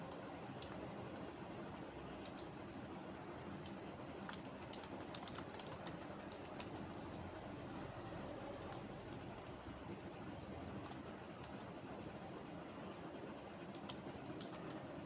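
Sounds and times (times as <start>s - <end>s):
low background hum: 0.0s - 15.0s
keyboard typing clicks: 2.2s - 2.5s, 3.6s - 6.9s, 10.8s - 11.8s, 13.6s - 14.8s.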